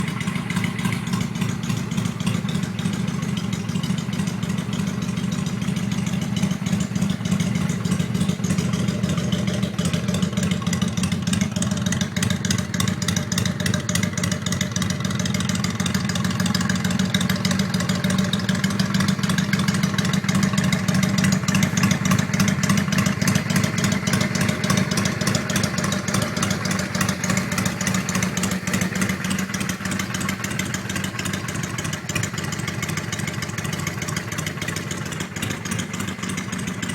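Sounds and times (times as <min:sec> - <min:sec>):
motorcycle engine idling: 0:00.0 - 0:36.9.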